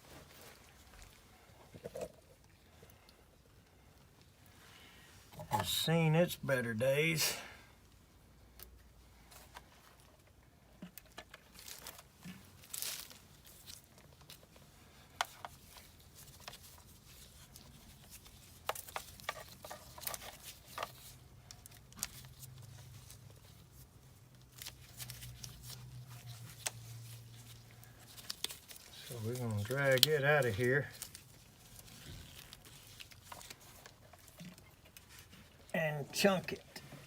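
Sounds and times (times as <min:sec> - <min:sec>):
plastic tubing rustling: 0:00.0 - 0:05.9, 0:08.7 - 0:37.0.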